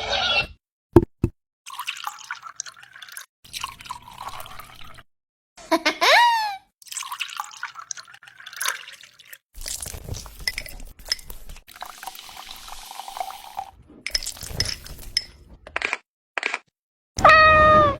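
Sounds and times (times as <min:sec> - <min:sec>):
water splashing and dripping: 0:06.8 - 0:10.7.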